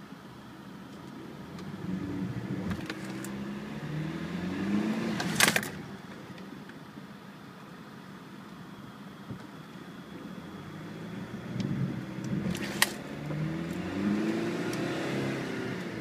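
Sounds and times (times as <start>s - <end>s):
diesel engine revving: 1.4s - 5.7s, 10.4s - 16.0s.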